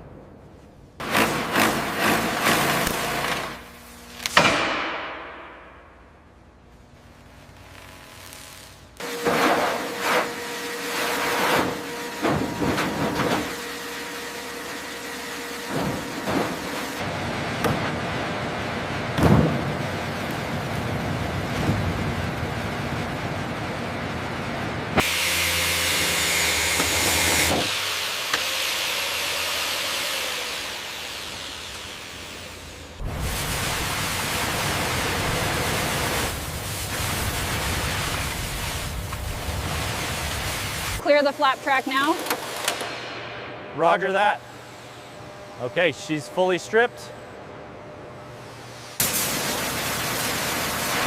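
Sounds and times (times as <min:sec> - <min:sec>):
machinery humming: 0:05.4 - 0:51.0.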